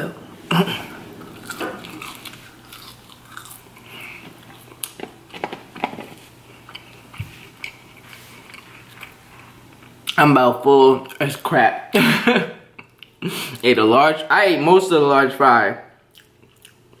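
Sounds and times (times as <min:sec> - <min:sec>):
chewing crunchy fries: 0:01.2 - 0:10.2, 0:16.1 - 0:17.0.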